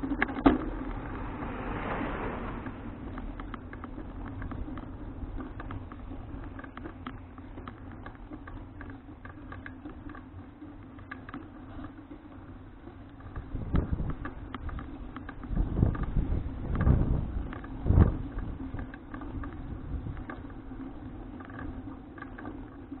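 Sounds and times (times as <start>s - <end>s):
bicycle clicks and rattles: 0.0s - 1.9s, 2.5s - 23.0s
bicycle bump: 0.0s - 10.1s
rumble of tyres and wind: 0.0s - 23.0s.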